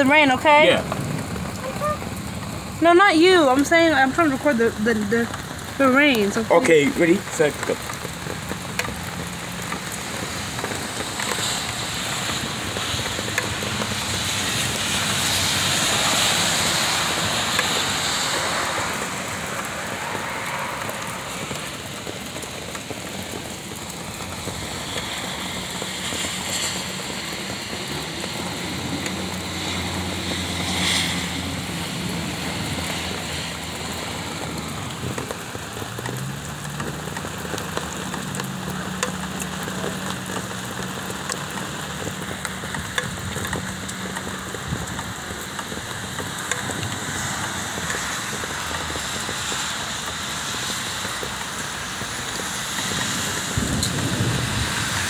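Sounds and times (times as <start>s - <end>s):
heavy rain on pavement: 0.0s - 55.0s.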